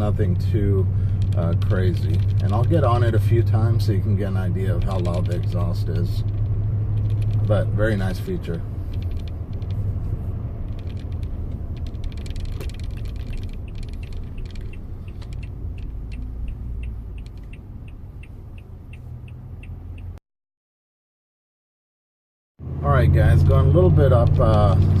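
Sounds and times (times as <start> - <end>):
engine low rumble in cabin: 0.0 - 20.2, 22.6 - 25.0
regular ticking clicks: 0.0 - 20.2, 23.5 - 25.0.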